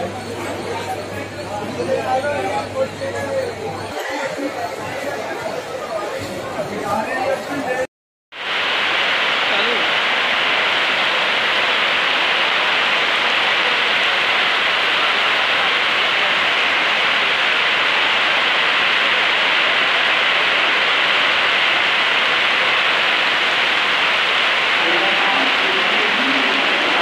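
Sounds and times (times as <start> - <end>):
heavy rain pouring: 8.4 - 27.0.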